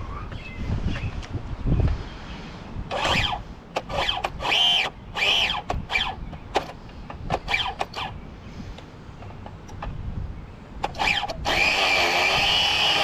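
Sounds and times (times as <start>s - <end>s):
model engine starter spinning: 2.9s - 6.8s, 10.8s - 13.0s.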